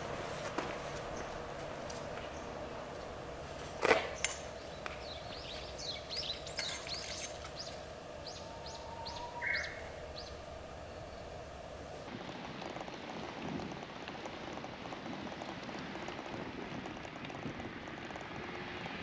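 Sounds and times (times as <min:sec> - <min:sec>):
songbird singing: 0:00.0 - 0:12.1
background noise: 0:00.0 - 0:19.0.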